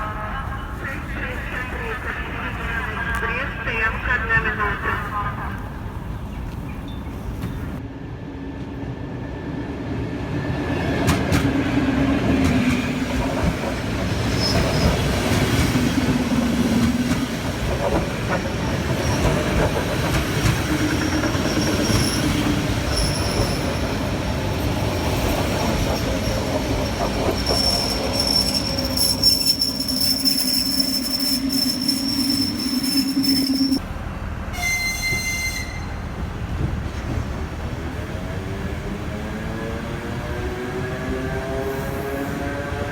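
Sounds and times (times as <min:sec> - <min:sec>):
train wheel and rail rumble: 0:00.0 - 0:42.9
high-pitched wheel squeal: 0:27.3 - 0:33.8, 0:34.6 - 0:36.0.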